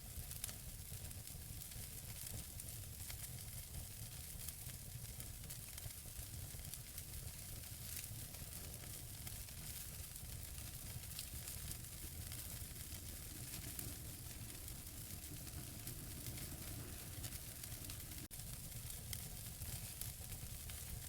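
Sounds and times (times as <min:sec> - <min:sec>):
logs crackling and popping: 0:05.1 - 0:21.0
fire hissing: 0:06.6 - 0:21.0.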